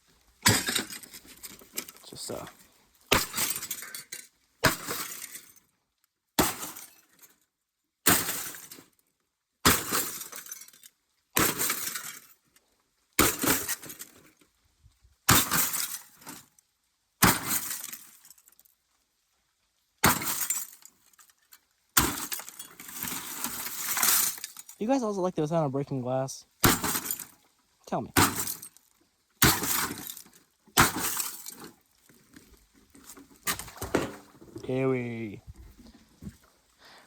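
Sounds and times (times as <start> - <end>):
glass breaking and tinkling: 3.3 - 4.2, 20.2 - 20.9, 22.0 - 24.8, 28.2 - 28.8, 29.4 - 31.7.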